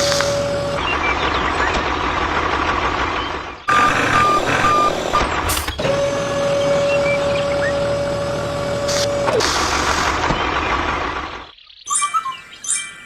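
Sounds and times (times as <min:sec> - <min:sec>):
vehicle backup alarm tone: 0:00.0 - 0:01.7, 0:03.7 - 0:10.2
machine noise: 0:00.0 - 0:11.5.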